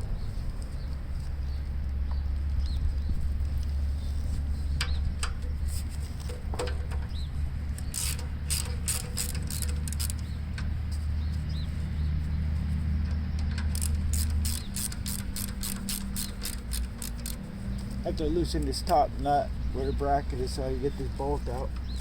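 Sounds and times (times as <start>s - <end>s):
steady low hum: 0.0s - 22.0s
ratchet wrench clicking: 7.8s - 10.7s, 13.6s - 17.4s.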